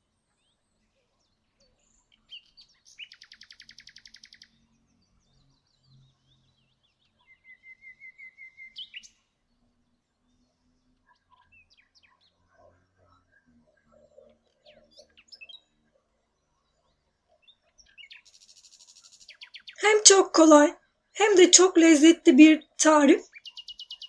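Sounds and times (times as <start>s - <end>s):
short bird chirps: 3.0s - 4.5s
bird trill: 3.0s - 4.6s, 22.6s - 24.0s.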